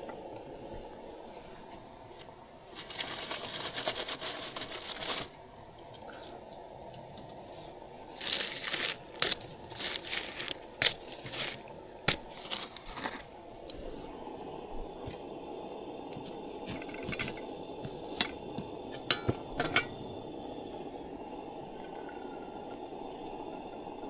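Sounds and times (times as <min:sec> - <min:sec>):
crinkling and rustling: 0:02.2 - 0:05.3, 0:07.0 - 0:13.9.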